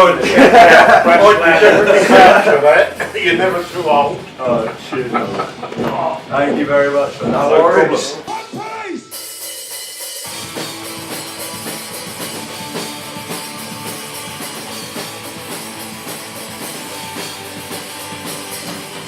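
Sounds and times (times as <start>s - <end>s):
drum kit beat: 0.0s - 19.0s
punk rock band playing: 0.0s - 19.0s
electric guitar: 10.3s - 19.0s.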